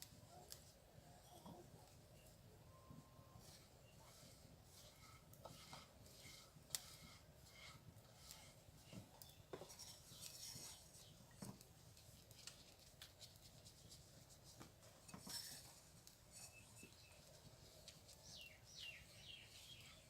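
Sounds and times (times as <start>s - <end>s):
clicks and scraping in bowl: 3.4s - 11.6s.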